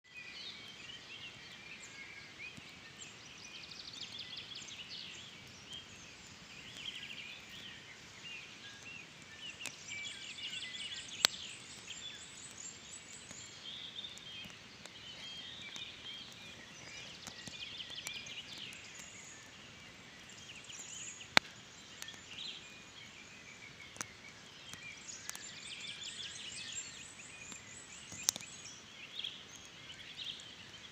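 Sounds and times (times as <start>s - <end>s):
birds chirping and trilling: 0.1s - 30.9s
campfire burning: 0.3s - 30.9s
burning wood popping: 2.5s - 28.8s.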